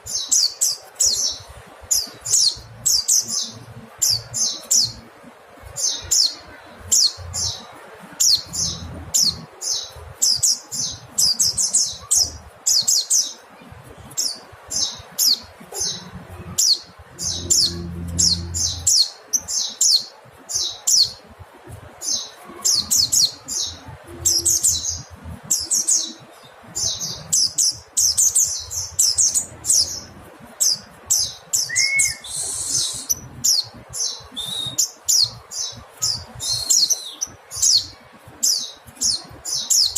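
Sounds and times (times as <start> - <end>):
bird chirping: 0.0 - 21.3, 22.0 - 39.9.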